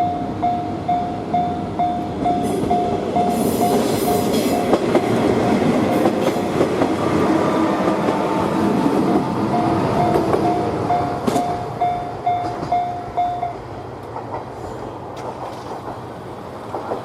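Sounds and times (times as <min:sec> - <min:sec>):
crossing bell ringing: 0:00.0 - 0:05.9, 0:09.1 - 0:13.7
train passing: 0:00.0 - 0:17.0.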